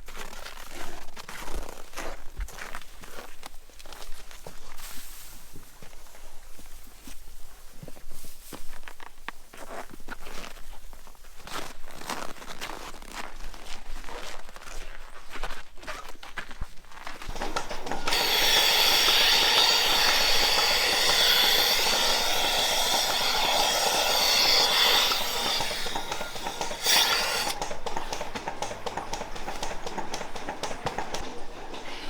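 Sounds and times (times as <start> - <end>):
machine hissing and whining: 17.3 - 32.0
machine knock: 17.3 - 32.0.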